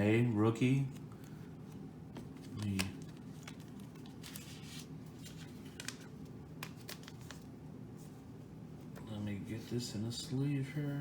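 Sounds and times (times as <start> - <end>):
trading cards rustling and clicking: 0.9 - 7.5.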